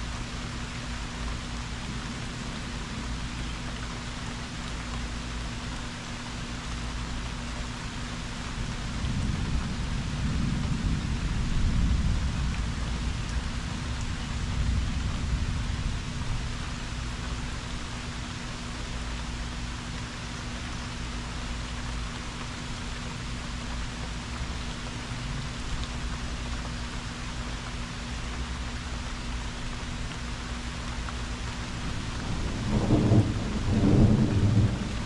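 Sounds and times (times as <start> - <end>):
rain falling hard: 0.0 - 35.0
thunder rumble: 8.9 - 16.7, 31.8 - 35.0.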